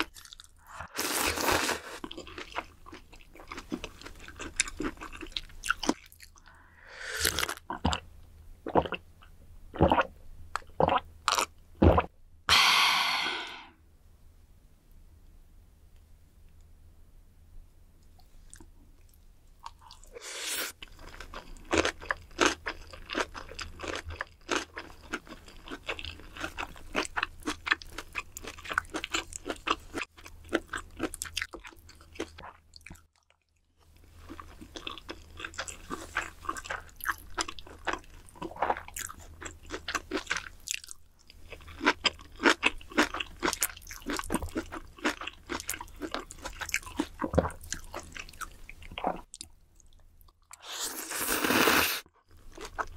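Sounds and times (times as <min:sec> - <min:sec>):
wet crunchy chewing: 0:34.2 - 0:49.5.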